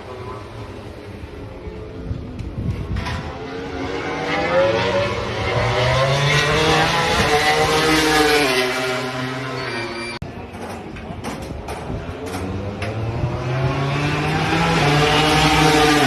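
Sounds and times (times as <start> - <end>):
racing motorcycle engine: 3.0 - 10.2, 11.9 - 16.0.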